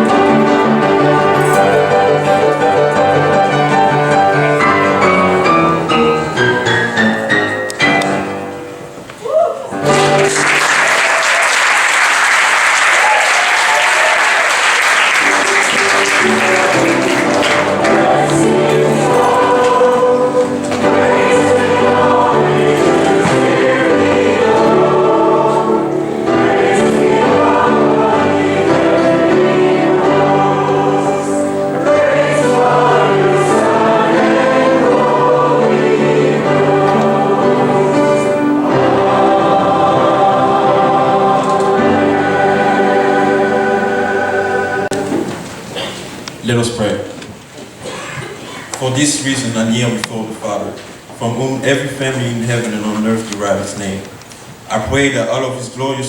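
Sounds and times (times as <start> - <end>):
choir singing with accompaniment: 0.0 - 9.1, 13.6 - 46.2
applause: 9.9 - 17.7.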